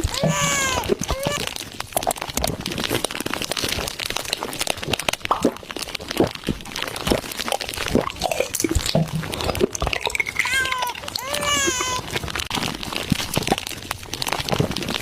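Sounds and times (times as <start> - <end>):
crunching and crackling: 0.0 - 15.0.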